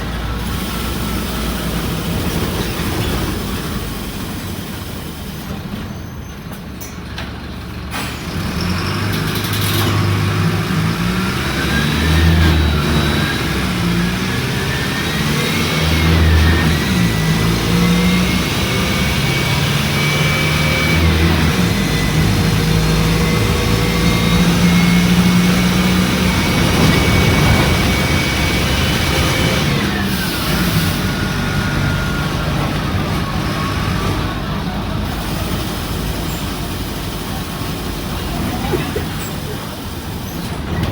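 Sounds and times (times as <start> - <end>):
bus engine accelerating: 0.0 - 40.9.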